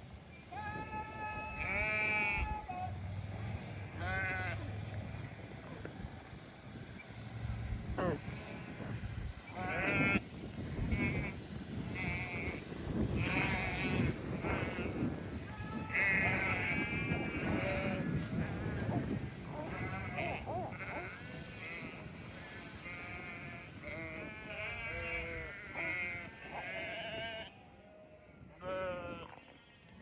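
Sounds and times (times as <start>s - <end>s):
sheep bleating: 0.5s - 2.9s, 3.8s - 4.7s, 8.0s - 10.2s, 12.0s - 27.5s, 28.5s - 29.7s.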